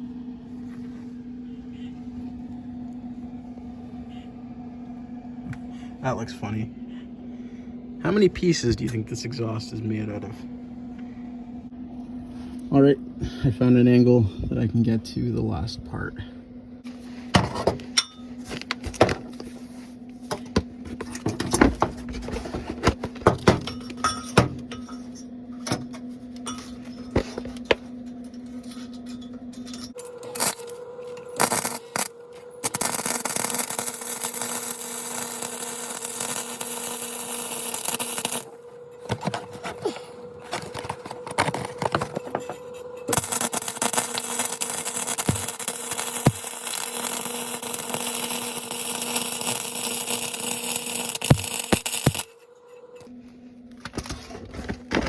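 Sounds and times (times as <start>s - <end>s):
steady hum: 0.0s - 55.0s
welding arc crackling: 30.1s - 38.6s, 43.1s - 52.4s.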